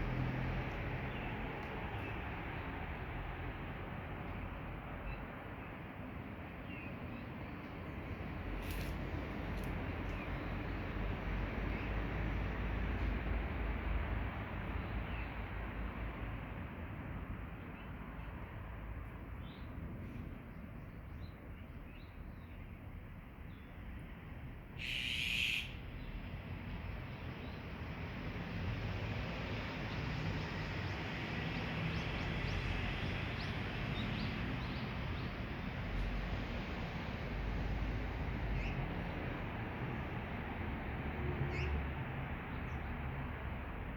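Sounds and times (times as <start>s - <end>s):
wild birds chirping: 31.9s - 35.5s, 38.5s - 38.8s.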